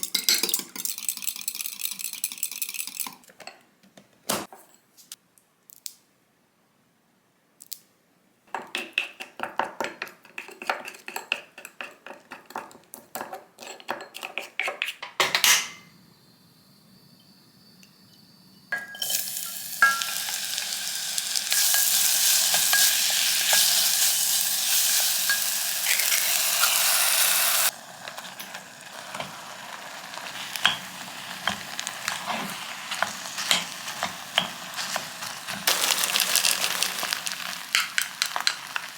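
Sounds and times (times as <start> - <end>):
utensil clinking against bowl: 0.0 - 3.6
food sizzling in hot pan: 15.8 - 38.9.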